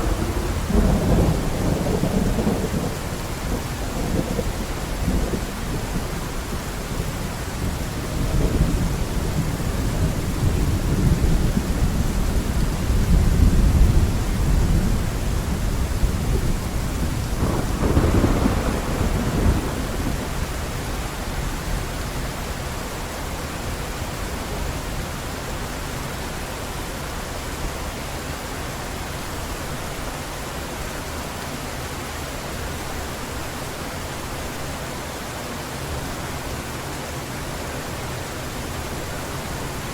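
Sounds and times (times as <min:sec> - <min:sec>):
thunder rumbling: 0:00.0 - 0:06.2, 0:07.6 - 0:21.0
heavy rain: 0:00.0 - 0:39.9.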